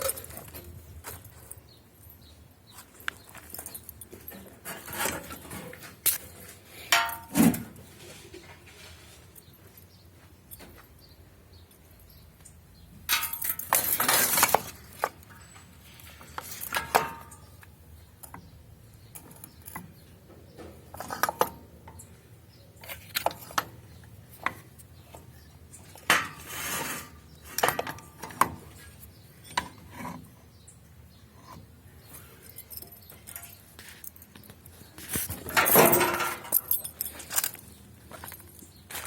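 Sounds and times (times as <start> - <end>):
metal pieces clanking: 6.9 - 7.4, 13.1 - 17.6, 35.1 - 38.4.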